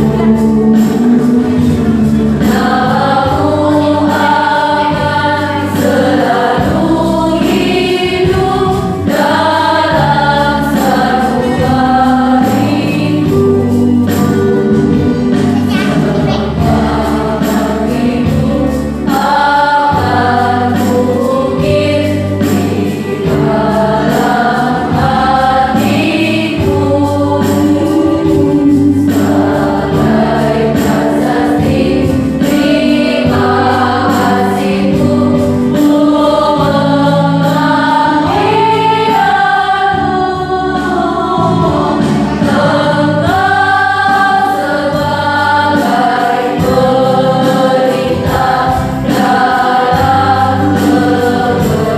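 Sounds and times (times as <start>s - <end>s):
choir singing: 0.0s - 51.9s.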